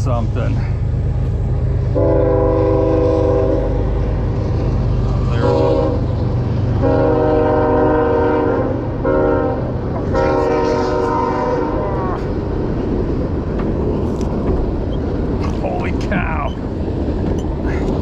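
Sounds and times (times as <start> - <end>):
train horn blasts: 1.9 - 3.9, 5.3 - 6.2, 6.8 - 12.3.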